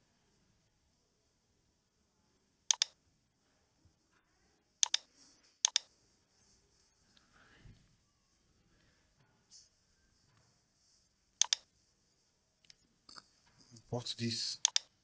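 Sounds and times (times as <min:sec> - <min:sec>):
mouse button double-clicks: 0:02.7 - 0:03.0, 0:04.8 - 0:05.9, 0:11.4 - 0:11.6.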